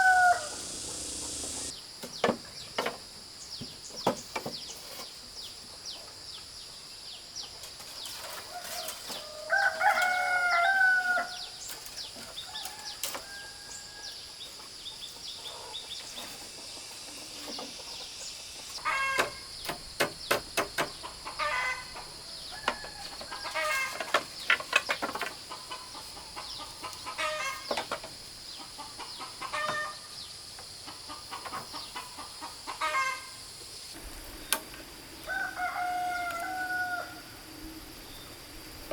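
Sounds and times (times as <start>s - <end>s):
rooster crowing: 0.0s - 1.7s, 8.5s - 11.4s, 12.5s - 14.1s, 35.2s - 37.4s
chickens clucking: 14.3s - 19.7s, 20.8s - 30.0s, 30.8s - 33.2s.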